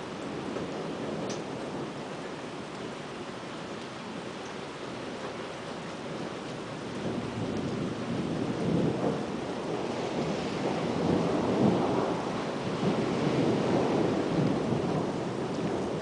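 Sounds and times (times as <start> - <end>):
wind: 0.0 - 16.0
thunder rumbling: 6.0 - 16.0.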